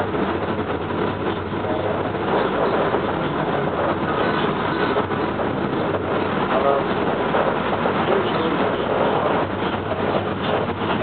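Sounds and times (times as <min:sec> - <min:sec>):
train running inside passenger car: 0:00.0 - 0:11.0.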